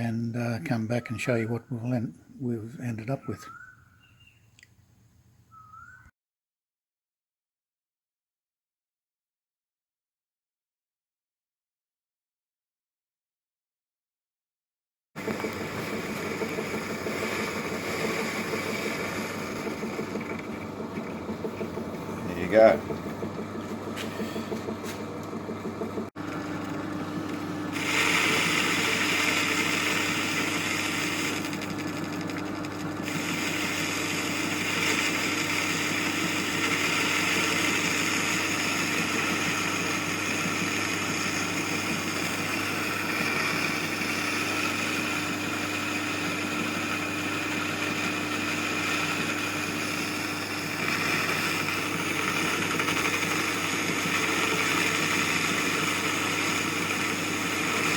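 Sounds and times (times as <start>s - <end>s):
lathe tool cutting hiss: 15.2s - 25.0s, 27.7s - 32.4s, 33.0s - 57.9s
lathe motor humming: 15.2s - 57.9s.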